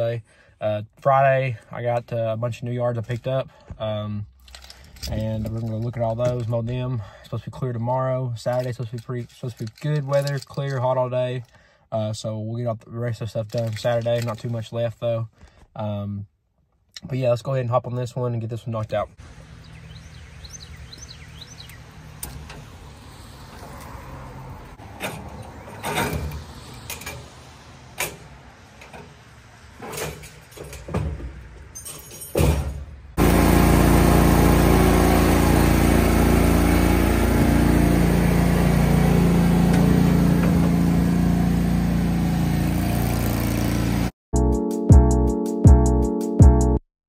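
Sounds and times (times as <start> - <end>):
knocks and clicks handling mower: 4.4 - 6.9, 8.5 - 10.9, 20.7 - 24.1, 24.8 - 44.0
mower engine running loudly: 33.2 - 44.1.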